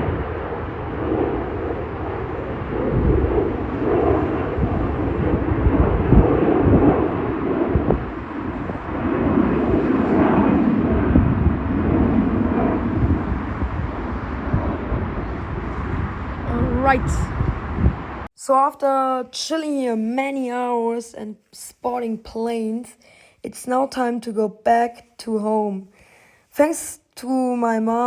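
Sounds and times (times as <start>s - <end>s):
jet airliner engine roar: 0.0s - 18.3s.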